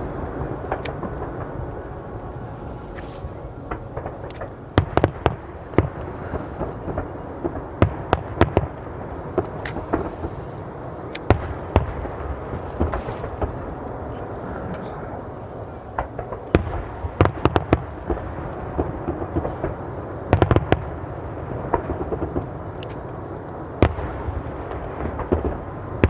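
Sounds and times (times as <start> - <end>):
fireworks bursting: 0.0 - 26.0
steady background noise: 0.0 - 26.0.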